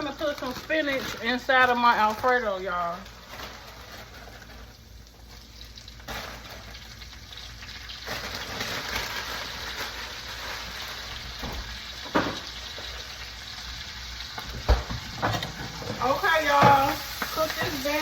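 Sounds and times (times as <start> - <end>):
sauce sizzling in a pan: 1.4 - 18.0.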